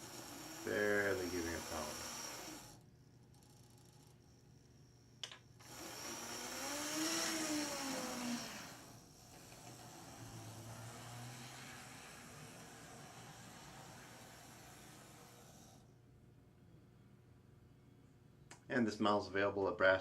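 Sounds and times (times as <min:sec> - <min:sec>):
model train motor whirring: 0:00.0 - 0:02.8, 0:05.6 - 0:15.9.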